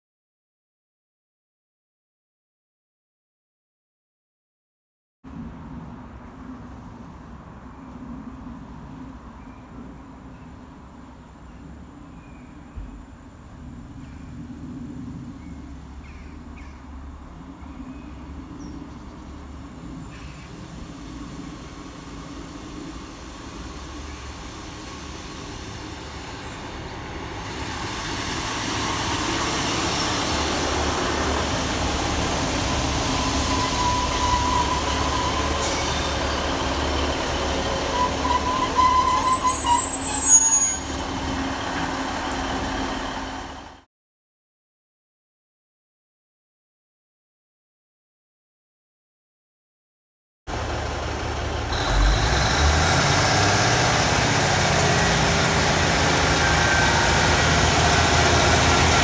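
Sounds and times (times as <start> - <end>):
diesel train rumbling: 5.3 - 43.8, 50.5 - 59.0
wheel or brake squeals: 23.4 - 43.7, 51.7 - 59.0.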